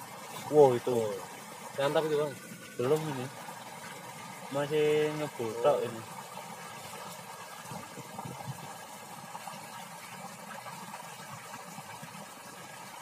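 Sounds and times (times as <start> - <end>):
wind buffeting microphone: 7.6 - 8.8.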